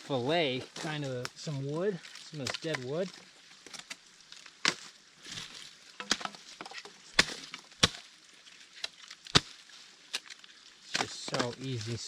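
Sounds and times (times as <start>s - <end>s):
dry wood cracking: 0.6s - 12.0s.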